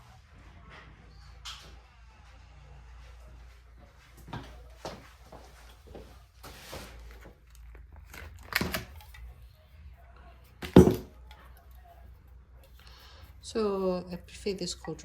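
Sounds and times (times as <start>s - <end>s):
items thumping down: 10.6s - 11.2s.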